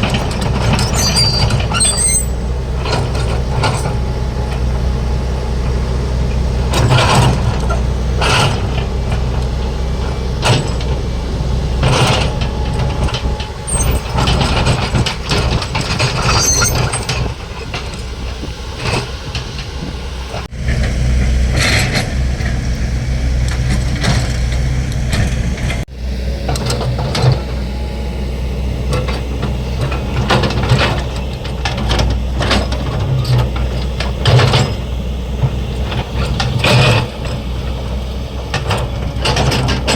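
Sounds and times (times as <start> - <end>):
metallic knocks and clanks: 0.0 - 4.0, 11.8 - 18.1
excavator diesel engine running: 0.0 - 39.9
high squeak: 0.6 - 2.6, 13.5 - 14.8, 15.9 - 17.3.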